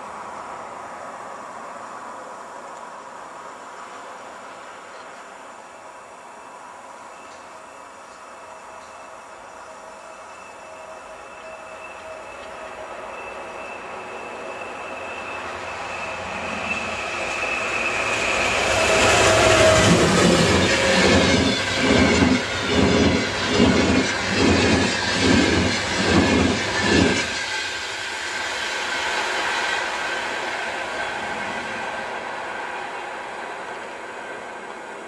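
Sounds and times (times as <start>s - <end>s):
locomotive passing with high whine: 3.2s - 35.0s
train wheels clattering on rails: 16.9s - 32.1s.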